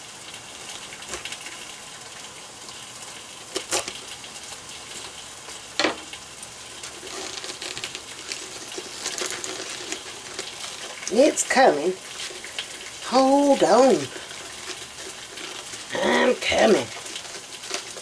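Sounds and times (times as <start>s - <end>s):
pork sizzling in a pan: 0.0s - 18.0s
knife crunching into cabbage: 3.5s - 4.1s, 6.8s - 11.1s, 16.9s - 18.0s.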